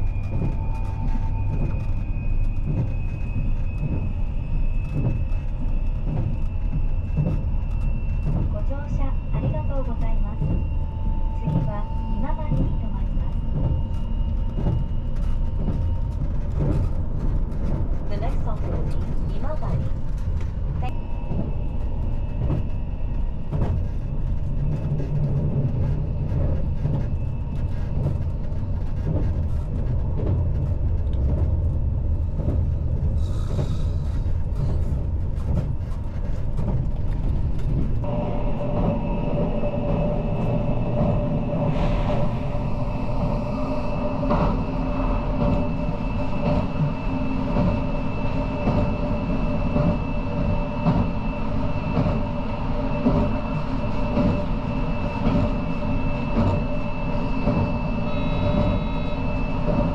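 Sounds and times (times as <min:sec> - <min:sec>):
steady hum of held tones: 0:00.0 - 0:59.9
train running rumble: 0:00.0 - 0:59.9.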